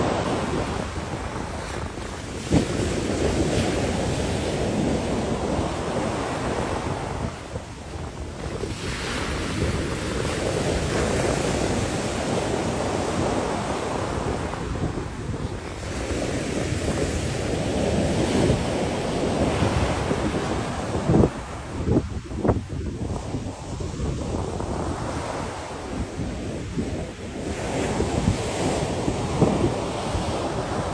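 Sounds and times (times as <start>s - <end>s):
sea waves washing in: 0.0s - 30.9s
wind buffeting microphone: 0.0s - 30.9s.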